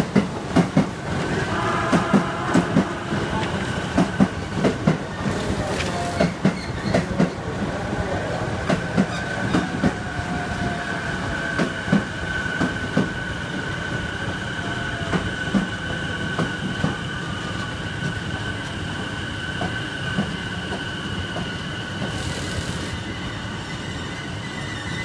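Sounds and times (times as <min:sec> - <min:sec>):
high wheel squeal: 0:21.5 - 0:25.0.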